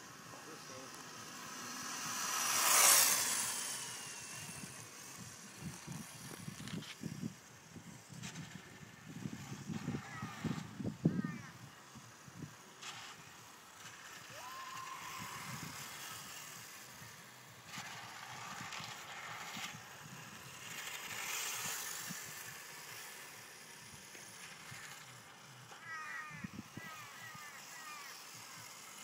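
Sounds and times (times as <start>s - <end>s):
radio-controlled motorbike running: 0.0s - 29.0s.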